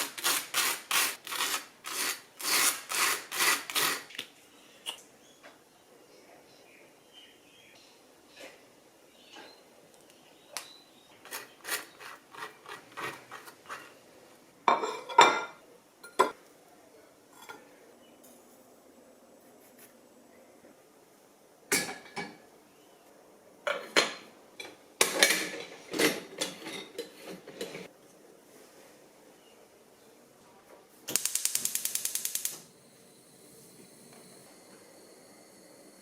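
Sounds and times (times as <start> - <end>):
dishes and cutlery clinking: 14.7 - 16.4, 23.7 - 27.9.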